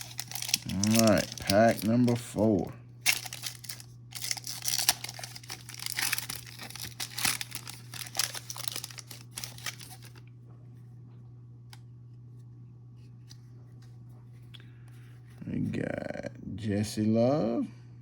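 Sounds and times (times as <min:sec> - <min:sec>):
foil wrapper tearing and crinkling: 0:00.0 - 0:10.2
low steady hum: 0:00.0 - 0:18.0.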